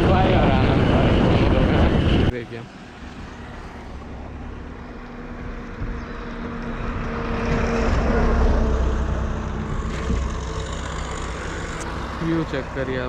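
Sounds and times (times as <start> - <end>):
motorcycle engine hum: 0.0 - 13.0
wind buffeting microphone: 0.0 - 13.0.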